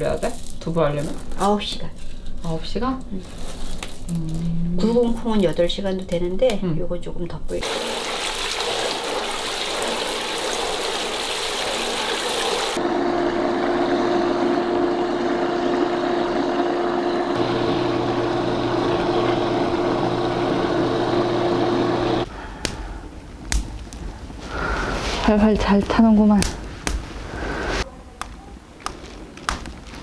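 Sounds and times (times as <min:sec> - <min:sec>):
running water splashing: 0:07.6 - 0:12.8
steady machine hum: 0:12.8 - 0:22.3.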